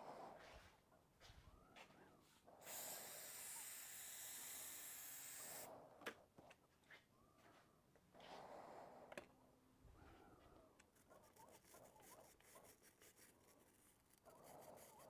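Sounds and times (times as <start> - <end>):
aerosol spraying hiss: 2.6 - 5.7.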